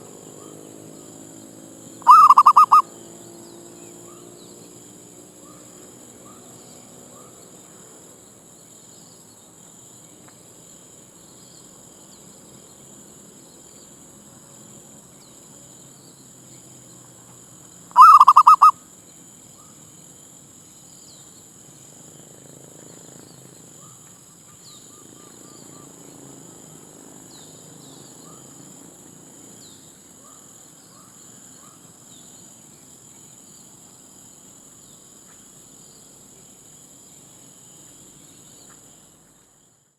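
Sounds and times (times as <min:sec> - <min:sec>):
bird chirps: 0:02.1 - 0:02.8, 0:18.0 - 0:18.7
dove stuttering cooing: 0:02.1 - 0:02.8, 0:18.0 - 0:18.7
faint dove notes: 0:02.1 - 0:02.8, 0:18.0 - 0:18.7.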